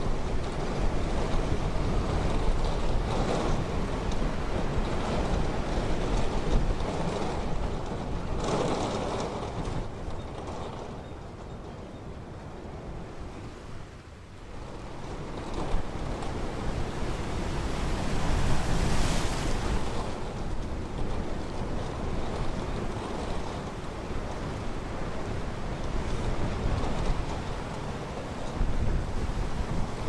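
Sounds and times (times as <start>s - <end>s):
ocean waves breaking: 14.5s - 30.0s.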